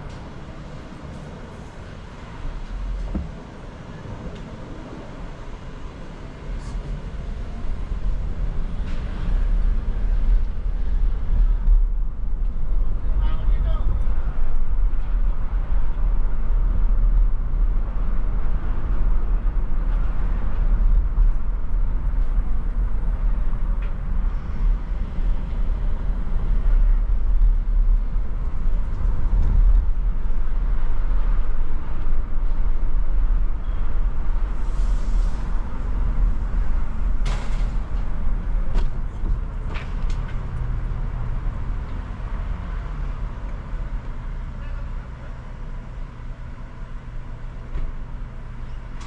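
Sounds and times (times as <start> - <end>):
car engine and road noise: 0.0 - 49.0.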